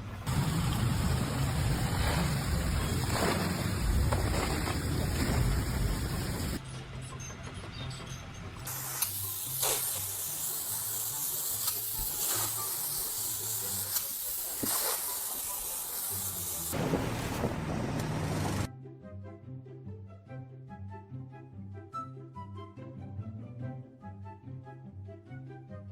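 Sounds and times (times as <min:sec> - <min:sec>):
steady hissing: 0:08.7 - 0:16.8.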